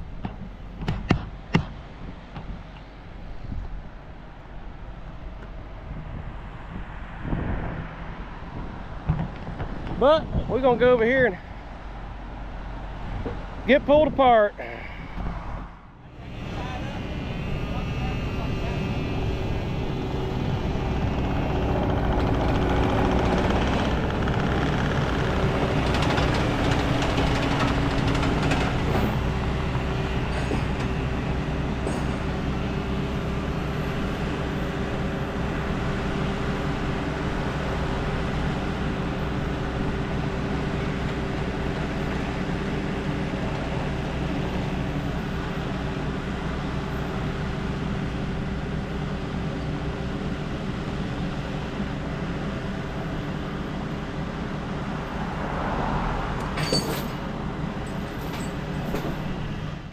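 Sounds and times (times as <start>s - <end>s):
truck diesel engine running: 15.8s - 59.9s.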